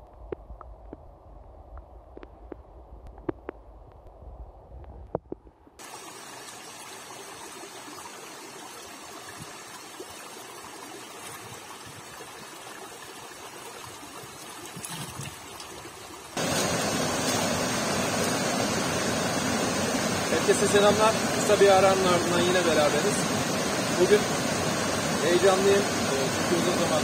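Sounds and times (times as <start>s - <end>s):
stream flowing: 5.8s - 27.0s.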